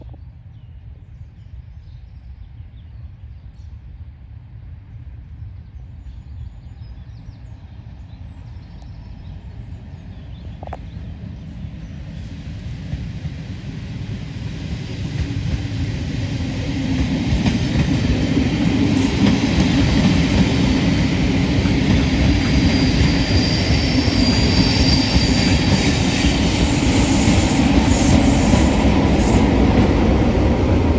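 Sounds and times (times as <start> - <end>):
train wheels rumbling on rails: 9.3 - 30.9
high wheel squeal: 21.8 - 29.6.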